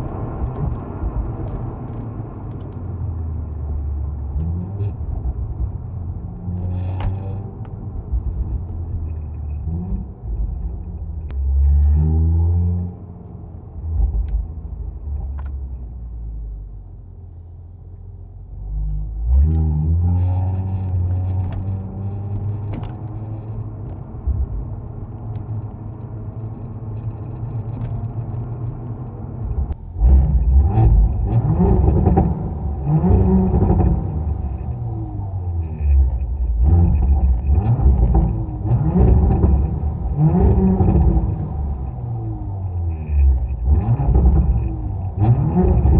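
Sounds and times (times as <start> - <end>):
exhaust cracks: 20.4 - 45.9
car engine revving: 29.4 - 45.9.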